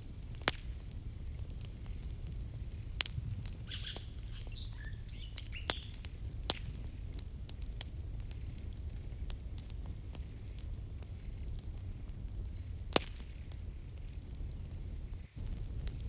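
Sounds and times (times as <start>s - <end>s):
steady low rumble: 0.0s - 16.0s
small bird twittering: 3.7s - 5.9s.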